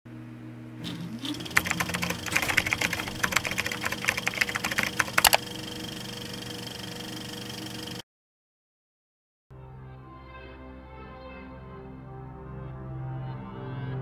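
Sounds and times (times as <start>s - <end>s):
steady hum with high tone: 0.1s - 8.0s
keystroke clicks: 0.8s - 5.4s.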